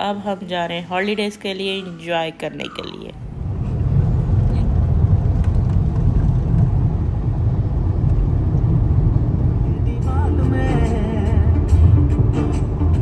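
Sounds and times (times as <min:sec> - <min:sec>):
car road and engine rumble: 0:00.0 - 0:13.0
music with singing voice: 0:09.7 - 0:13.0.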